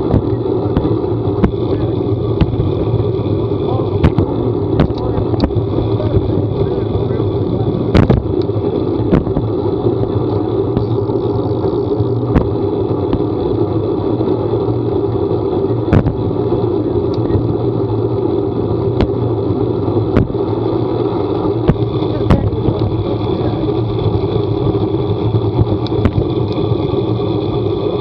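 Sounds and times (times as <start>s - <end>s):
vehicle running: 0.0s - 28.0s.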